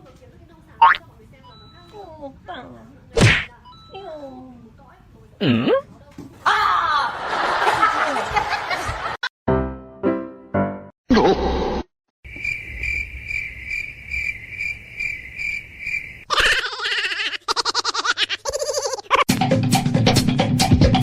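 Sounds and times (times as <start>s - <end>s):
cricket chirping: 12.3s - 16.3s.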